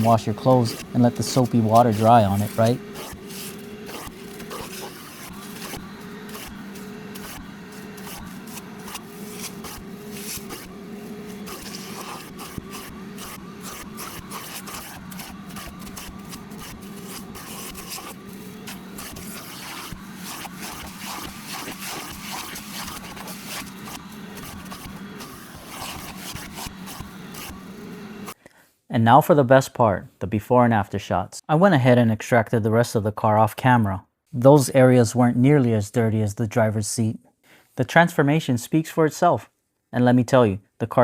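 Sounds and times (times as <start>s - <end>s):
shop vacuum motor hum: 0.0s - 28.4s
wand scraping along fabric: 0.0s - 28.4s.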